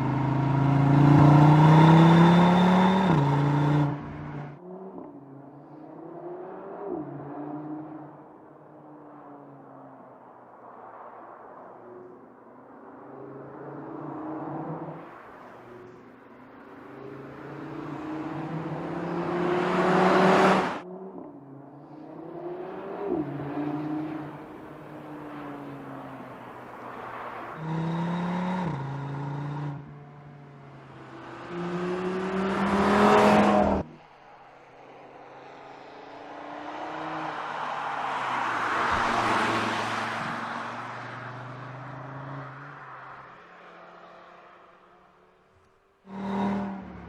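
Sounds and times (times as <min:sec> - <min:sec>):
car engine accelerating: 0:00.0 - 0:08.2, 0:13.7 - 0:34.0, 0:45.6 - 0:47.0.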